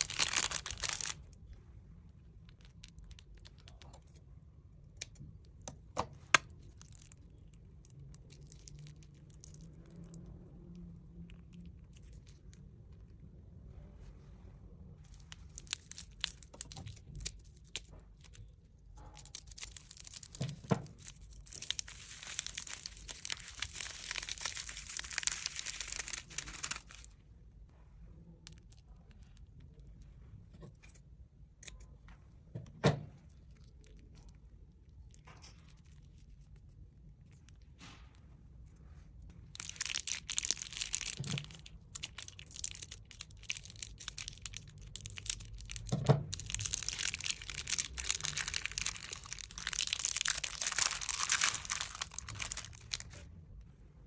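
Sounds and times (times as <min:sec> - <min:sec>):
slime crackling and popping: 0:00.0 - 0:01.5, 0:06.2 - 0:10.3, 0:15.1 - 0:27.2, 0:39.4 - 0:53.2.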